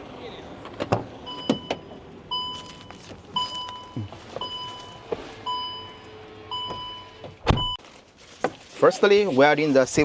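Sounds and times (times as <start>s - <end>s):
truck cab warning chime beeps: 1.2s - 7.8s
heavy thump: 6.6s - 7.8s.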